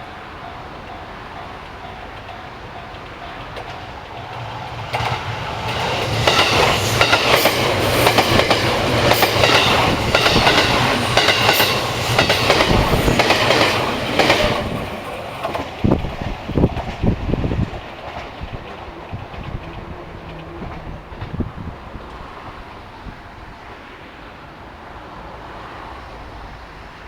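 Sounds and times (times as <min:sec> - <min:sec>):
train wheels clacking over rail joints: 0:00.9 - 0:22.5.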